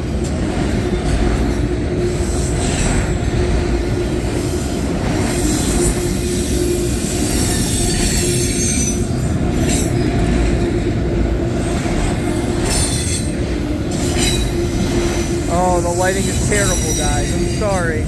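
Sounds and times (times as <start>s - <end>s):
freight train wheels rumbling: 0.0s - 18.0s
wheel squeals: 4.4s - 10.4s, 11.8s - 18.0s.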